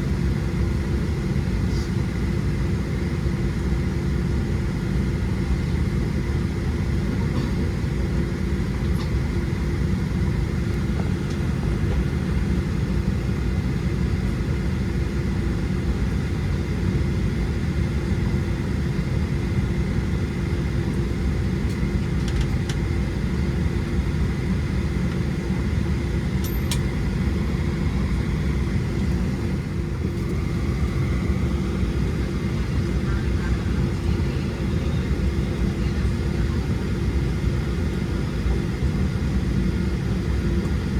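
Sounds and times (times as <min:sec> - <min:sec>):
aircraft cabin engine rumble: 0:00.0 - 0:40.9.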